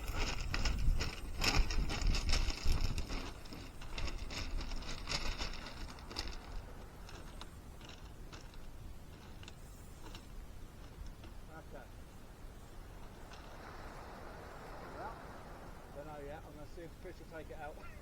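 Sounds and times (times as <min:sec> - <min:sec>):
footsteps crunching on pebbles: 0:00.0 - 0:09.6.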